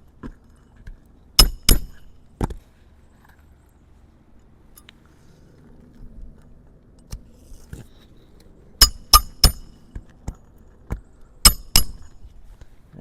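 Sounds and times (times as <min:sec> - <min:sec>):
hammer striking metal: 0:01.4 - 0:02.2, 0:08.8 - 0:10.0, 0:11.4 - 0:12.2.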